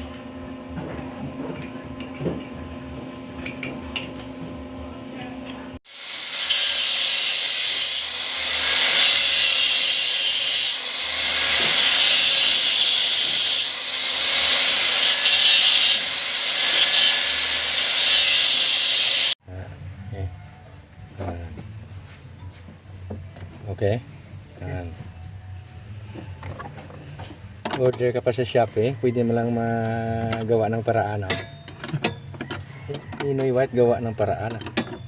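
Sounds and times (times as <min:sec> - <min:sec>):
loud fluctuating hiss: 0:05.9 - 0:19.4.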